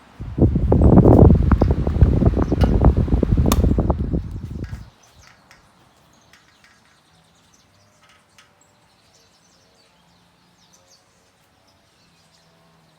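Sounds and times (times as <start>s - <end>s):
low hum: 0.2s - 4.9s.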